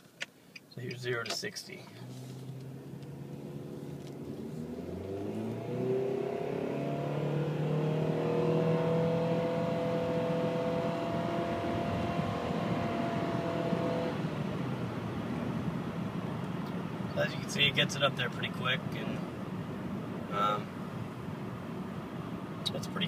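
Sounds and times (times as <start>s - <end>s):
car engine accelerating: 1.8s - 17.5s.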